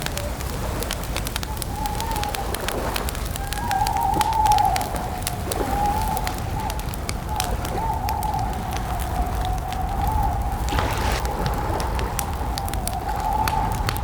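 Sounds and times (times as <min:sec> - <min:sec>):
campfire crackling and popping: 0:00.0 - 0:14.0
low rumble: 0:10.2 - 0:14.0.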